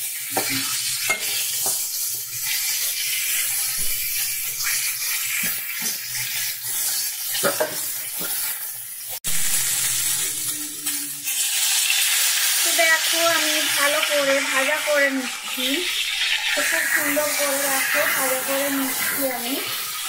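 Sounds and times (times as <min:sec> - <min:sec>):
vegetables sizzling in hot oil: 0:00.0 - 0:20.0
metal spatula scraping pan: 0:16.0 - 0:20.0.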